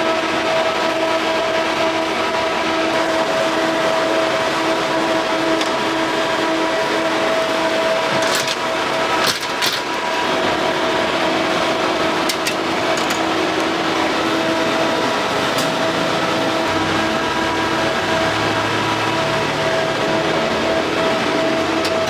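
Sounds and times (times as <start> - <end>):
machine hum: 0.0 - 22.0
noisy background: 0.0 - 22.0.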